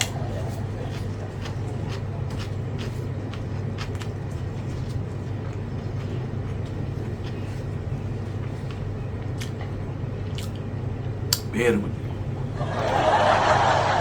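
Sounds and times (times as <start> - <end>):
mouth clicks and smacks eating: 0.0 - 11.5
steady low hum: 0.0 - 14.0.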